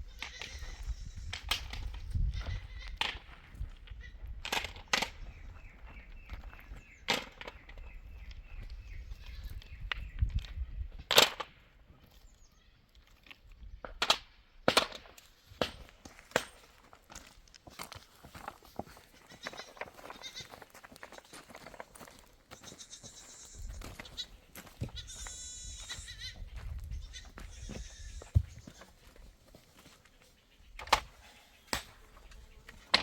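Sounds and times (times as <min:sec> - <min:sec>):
goats bleating: 0:00.0 - 0:01.4, 0:02.3 - 0:03.0, 0:19.0 - 0:20.6, 0:22.5 - 0:29.1.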